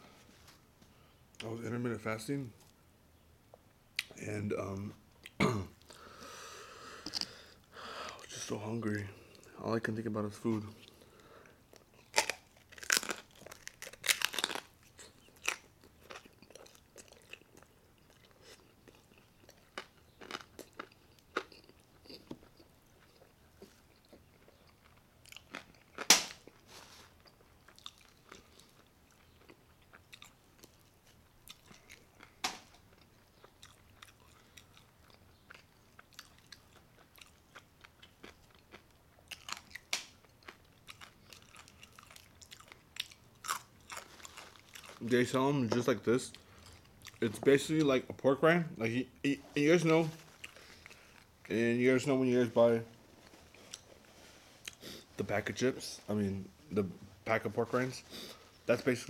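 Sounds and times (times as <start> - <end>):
crunching and chewing: 5.2 - 9.6, 10.6 - 45.4, 46.3 - 47.8, 49.8 - 51.5, 52.9 - 55.1.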